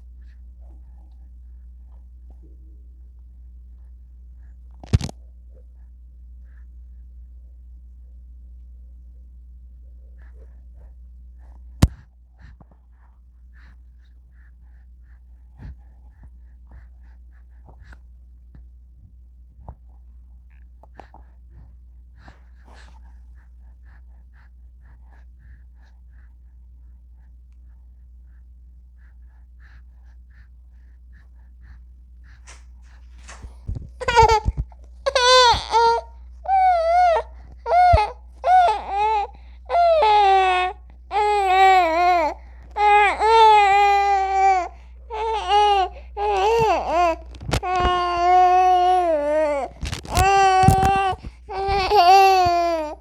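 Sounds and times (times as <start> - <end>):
steady low hum: 0.0 - 53.0
newborn baby crying: 34.0 - 53.0
baby breathing and gasping: 44.2 - 53.0.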